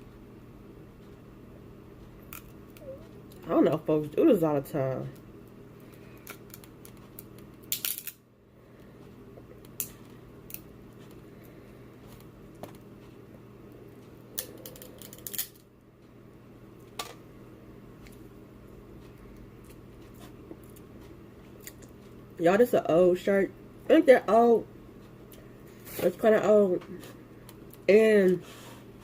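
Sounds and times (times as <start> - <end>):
steady low hum: 0.0 - 29.0
shells being cracked: 6.2 - 8.2, 14.4 - 15.6.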